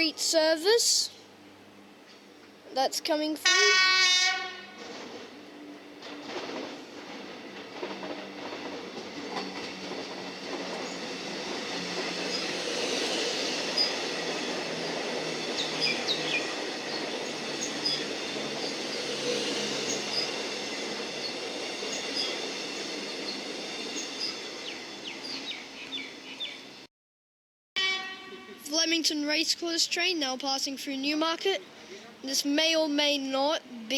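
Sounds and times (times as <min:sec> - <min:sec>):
electric train passing: 0:00.0 - 0:26.9, 0:27.8 - 0:33.7
high wheel squeals: 0:10.8 - 0:26.6.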